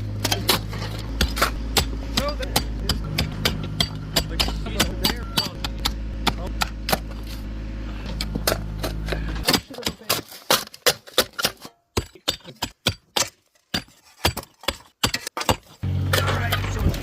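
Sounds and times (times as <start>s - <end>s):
engine running: 0.0s - 9.7s, 15.8s - 17.0s.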